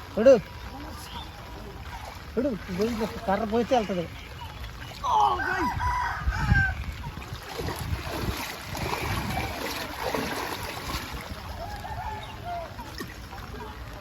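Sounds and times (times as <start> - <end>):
rooster crowing: 5.3 - 6.8.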